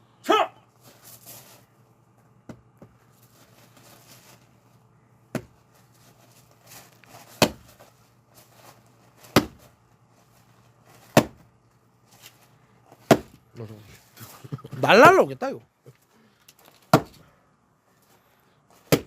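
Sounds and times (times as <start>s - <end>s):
axe striking log: 5.3s - 5.5s, 7.4s - 7.7s, 9.3s - 9.6s, 11.1s - 11.5s, 13.0s - 13.4s, 16.9s - 17.2s.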